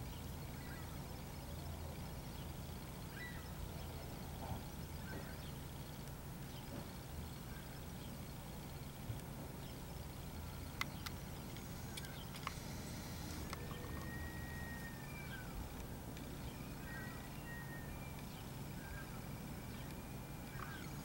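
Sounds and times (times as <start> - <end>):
small birds whistling: 0.0 - 8.3, 9.6 - 21.0
sharp clicks: 10.7 - 14.1.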